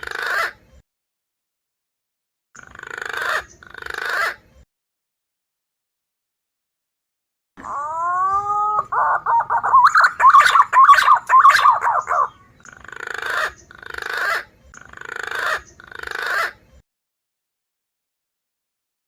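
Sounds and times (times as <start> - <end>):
harsh raspy bird calls: 0.0 - 0.6, 2.6 - 4.4, 7.6 - 16.6
pigeon whistling calls: 7.6 - 12.5.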